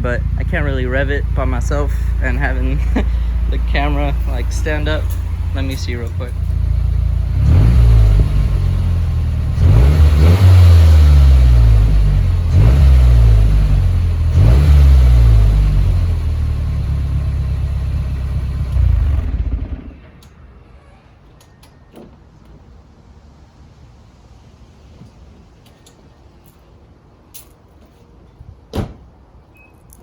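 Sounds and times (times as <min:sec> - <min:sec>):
car engine revving and idling: 0:00.0 - 0:20.1.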